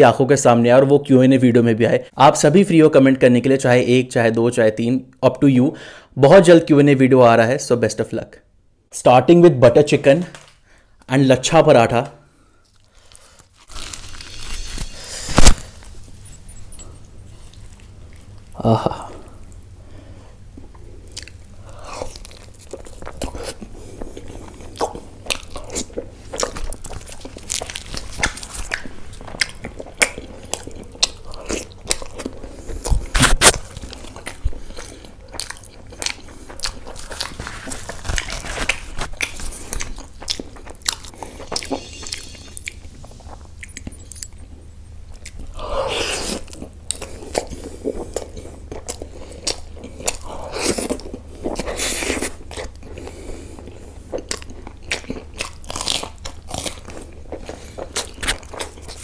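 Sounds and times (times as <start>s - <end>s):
person chewing food: 12.6s - 59.0s.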